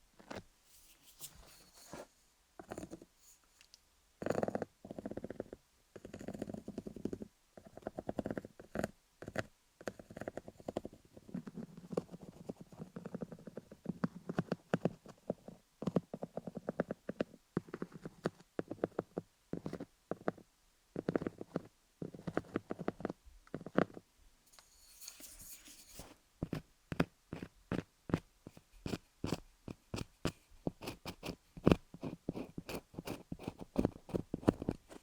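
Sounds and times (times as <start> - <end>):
scratchy hiss: 0.2 - 5.5, 21.1 - 26.6
pencils tapping on dummy head: 26.4 - 35.0.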